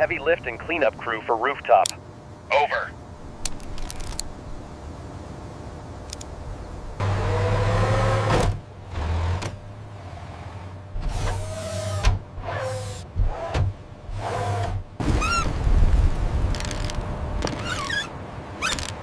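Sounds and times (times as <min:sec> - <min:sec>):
faint clicks: 0:01.8 - 0:02.0
electric motor whining: 0:10.9 - 0:14.9.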